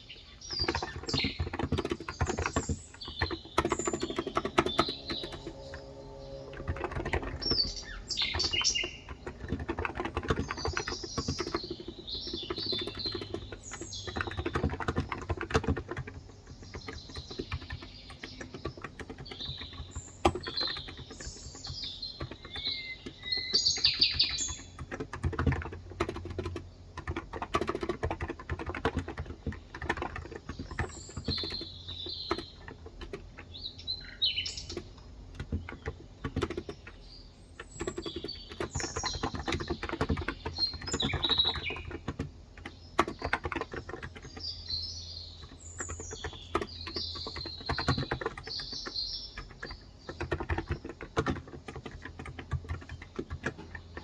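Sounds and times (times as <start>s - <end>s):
birds chirping: 0.0s - 54.0s
typing on a keyboard: 0.4s - 54.0s.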